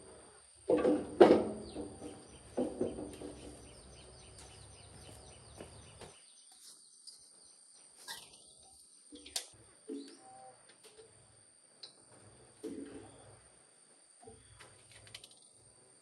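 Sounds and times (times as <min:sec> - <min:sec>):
birds chirping: 0:01.6 - 0:09.4.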